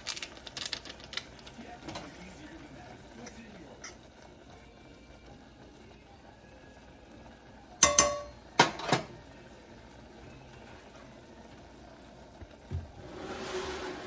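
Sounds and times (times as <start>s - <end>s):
metal utensil clinking on pot: 3.2s - 4.1s, 7.8s - 9.2s.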